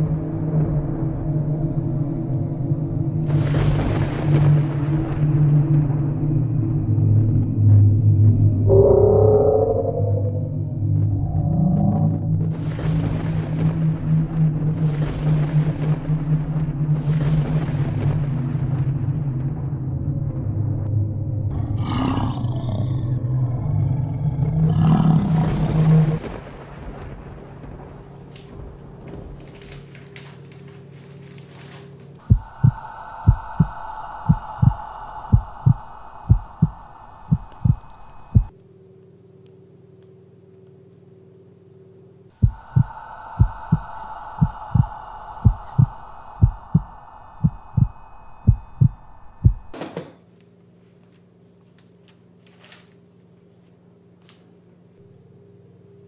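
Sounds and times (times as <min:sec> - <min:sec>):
low rumbling drone: 0:00.0 - 0:40.6, 0:41.3 - 0:49.8
monster roar: 0:21.4 - 0:26.2
quiet low hum: 0:22.8 - 0:56.0
paper rustling: 0:28.4 - 0:32.2, 0:50.8 - 0:54.5
heartbeat thumps: 0:32.2 - 0:38.5, 0:42.4 - 0:49.8.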